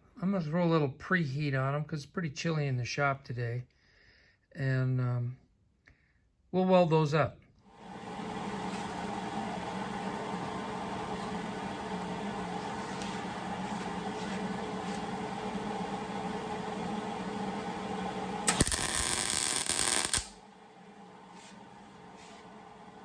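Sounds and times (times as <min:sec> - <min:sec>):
steady hum: 0:07.7 - 0:23.0
welding arc crackle: 0:18.4 - 0:20.4.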